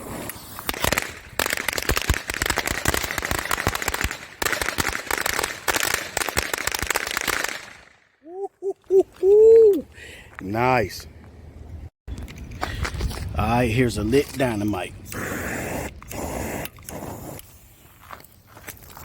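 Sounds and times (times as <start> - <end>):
firecrackers popping: 0.4 - 8.0.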